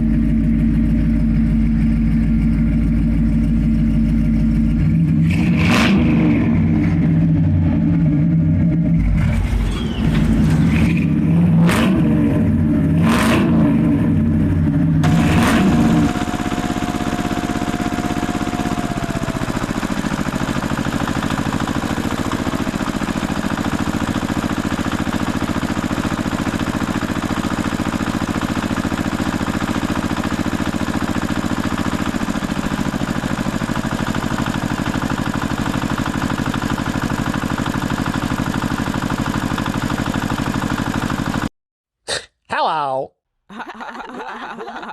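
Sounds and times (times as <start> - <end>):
tractor engine running: 0.0 - 13.0, 13.9 - 41.5
high tone sliding down: 15.0 - 19.5.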